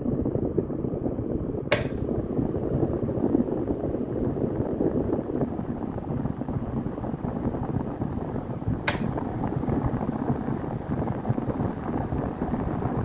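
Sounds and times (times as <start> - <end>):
fan wind buffeting microphone: 0.0 - 13.0
sharp click: 1.7 - 2.1, 8.9 - 9.2.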